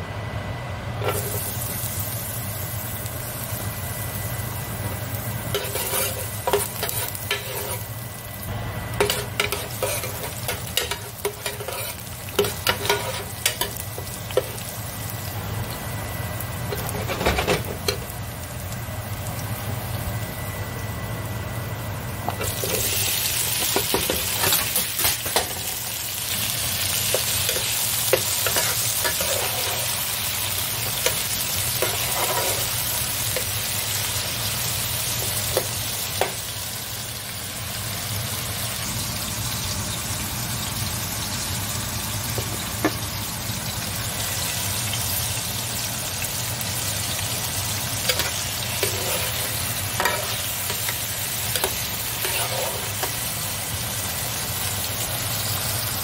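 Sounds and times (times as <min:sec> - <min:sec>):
tomatoes sizzling in hot oil: 0:01.0 - 0:56.0
metal spoon scraping pan: 0:05.5 - 0:07.9, 0:09.0 - 0:13.7, 0:27.1 - 0:30.0, 0:31.8 - 0:32.7, 0:48.1 - 0:51.0, 0:51.6 - 0:53.2.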